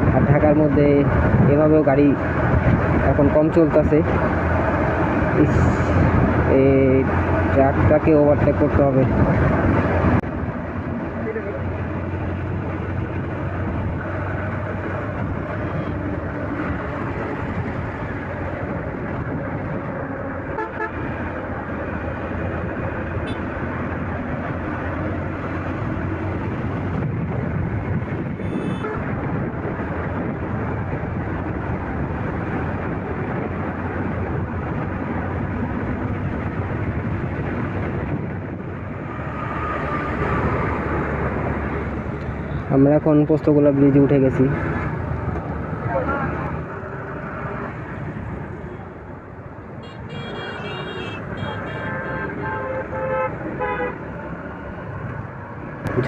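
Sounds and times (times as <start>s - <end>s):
road noise: 0.0s - 56.0s
vehicle horns tooting: 20.5s - 21.0s, 23.2s - 23.5s, 28.4s - 29.1s, 49.8s - 54.0s.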